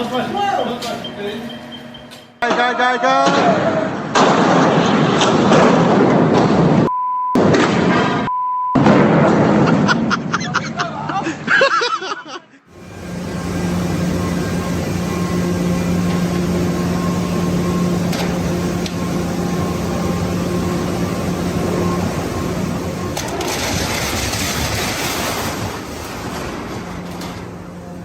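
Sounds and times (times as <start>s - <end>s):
machine running with a hum: 12.7s - 28.0s.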